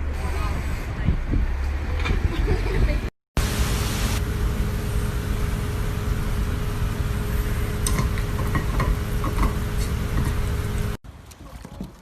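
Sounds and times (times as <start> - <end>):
machine hum with faint tone: 3.4 - 11.0.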